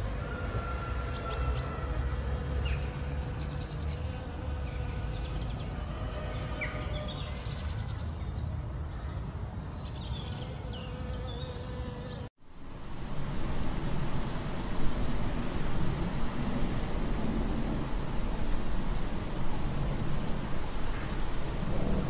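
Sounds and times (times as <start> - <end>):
honeybee buzzing: 0.9 - 7.4, 10.3 - 12.3
birds chirping: 1.1 - 12.3
low rushing noise: 12.4 - 22.0.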